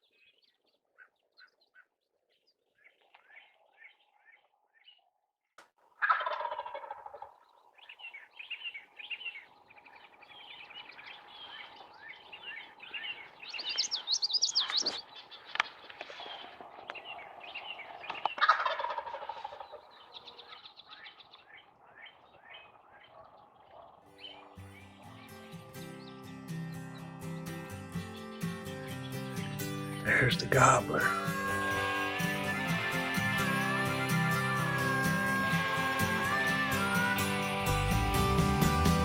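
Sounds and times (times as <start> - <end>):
small birds chirping: 0.0 - 5.2, 6.3 - 38.2
turkey gobbling: 6.0 - 8.2, 16.2 - 24.0.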